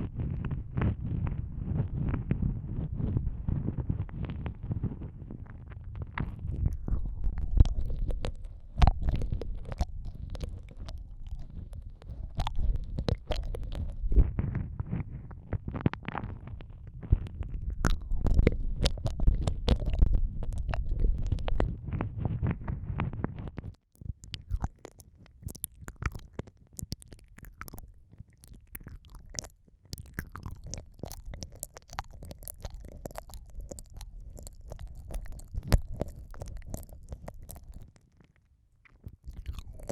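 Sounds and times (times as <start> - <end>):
muffled low rumble: 0.0 - 23.7
wet mouth clicks and smacks: 6.2 - 14.4, 15.6 - 21.8, 23.5 - 39.9.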